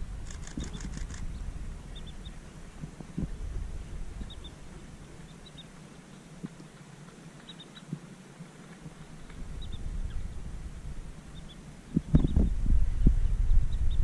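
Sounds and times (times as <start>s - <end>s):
low rumble: 0.0s - 5.4s, 12.0s - 14.0s
faint high bird calls: 0.4s - 2.4s, 4.2s - 8.0s, 11.3s - 12.5s.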